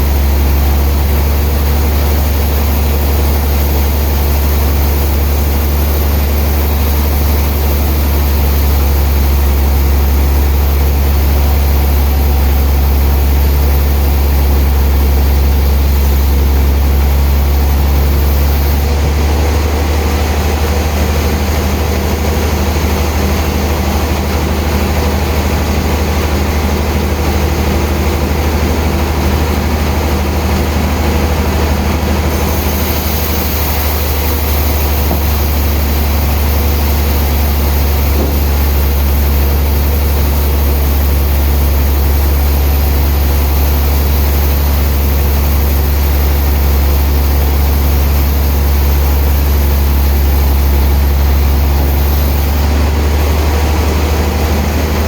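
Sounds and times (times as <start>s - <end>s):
high hiss: 0.0s - 18.9s, 32.3s - 53.6s
sawmill machinery humming: 0.0s - 55.0s.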